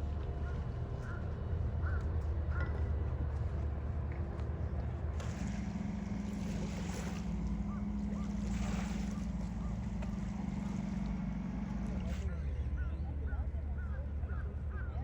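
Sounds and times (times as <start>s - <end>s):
boat engine droning: 0.0s - 15.0s
wind: 0.0s - 15.0s
water noise: 5.0s - 12.3s.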